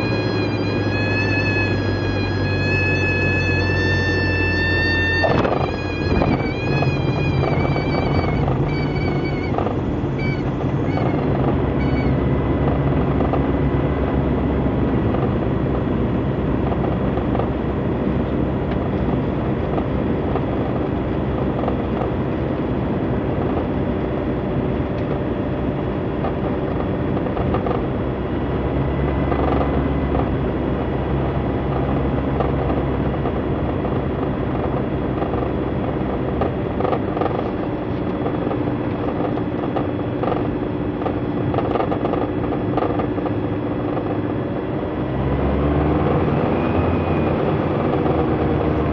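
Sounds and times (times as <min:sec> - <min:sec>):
wavering whistling tones: 0:00.0 - 0:12.2
small aircraft engine drone: 0:00.0 - 0:48.9.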